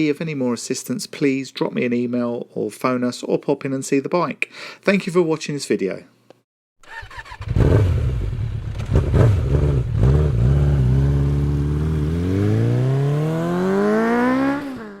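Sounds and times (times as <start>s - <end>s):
motorcycle engine revving: 6.8s - 15.0s.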